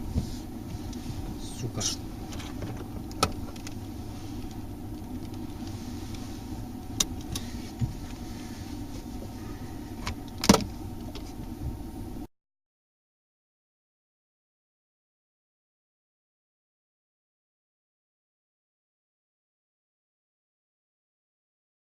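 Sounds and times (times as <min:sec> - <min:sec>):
car road and engine rumble: 0:00.0 - 0:12.3.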